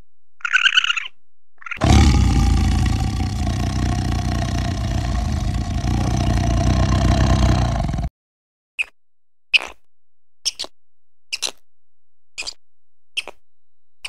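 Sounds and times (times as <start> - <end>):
tiger growling: 1.8 - 8.1.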